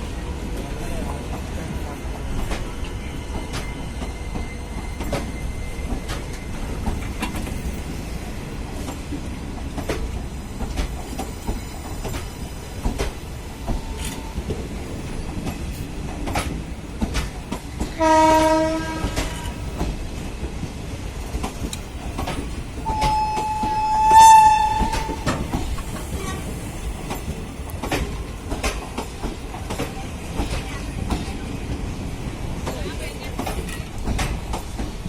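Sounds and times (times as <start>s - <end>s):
train wheels rumbling: 0.0s - 35.0s
wheels clicking over rail joints: 8.8s - 18.0s, 21.2s - 35.0s.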